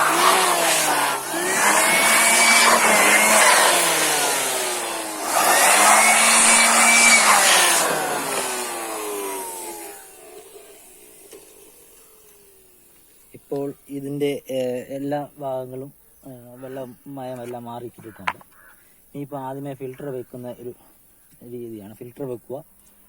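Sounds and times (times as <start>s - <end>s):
electric air blower whine: 0.0s - 13.4s.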